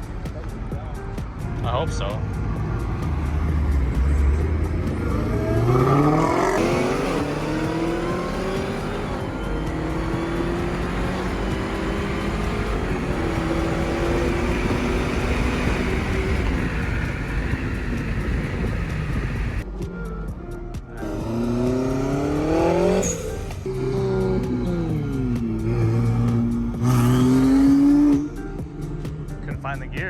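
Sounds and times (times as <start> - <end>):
car engine revving hard: 2.4 - 19.6, 21.0 - 28.4
rushing noise: 4.6 - 19.6.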